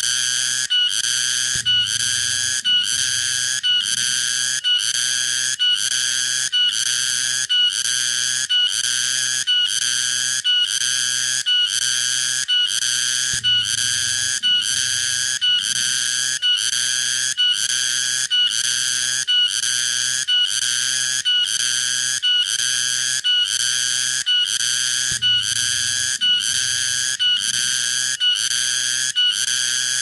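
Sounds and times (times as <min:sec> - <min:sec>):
cicada ringing call: 0:00.0 - 0:06.7, 0:23.9 - 0:30.0.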